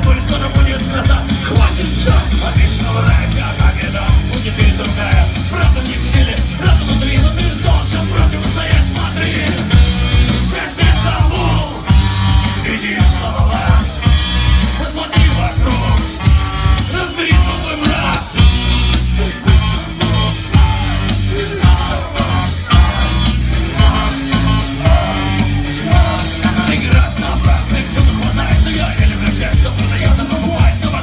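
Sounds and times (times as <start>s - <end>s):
heavy drum beat: 0.0s - 31.0s
live rock band: 0.0s - 31.0s
person singing: 19.1s - 31.0s.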